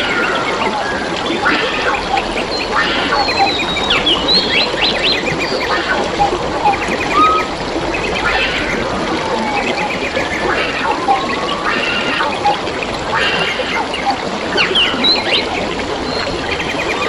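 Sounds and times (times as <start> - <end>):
water trickling: 0.0 - 17.0
birds chattering and whistling: 1.4 - 8.9.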